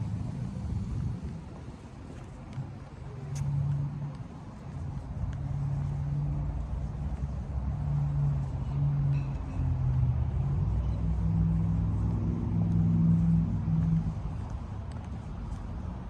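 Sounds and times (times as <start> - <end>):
car engine humming: 4.8 - 16.0.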